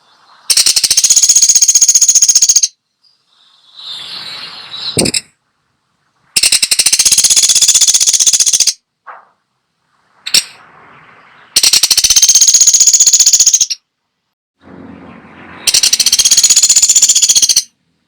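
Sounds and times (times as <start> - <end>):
woodpecker rattling calls: 0.5 - 2.8, 6.4 - 8.8, 11.4 - 13.9, 15.7 - 17.8.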